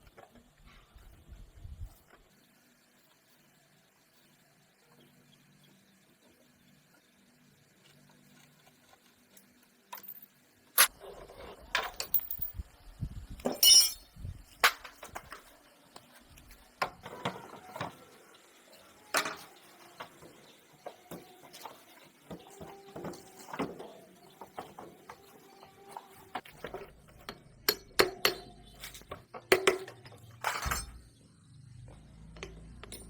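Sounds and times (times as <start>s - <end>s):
metal tools clanking: 13.5s - 14.0s, 26.7s - 31.0s, 32.4s - 33.0s.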